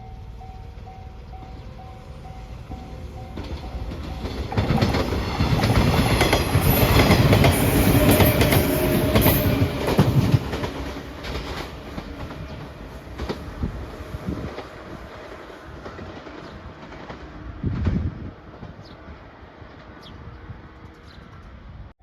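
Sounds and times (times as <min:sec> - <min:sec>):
train wheels clacking over rails: 0:02.7 - 0:18.9.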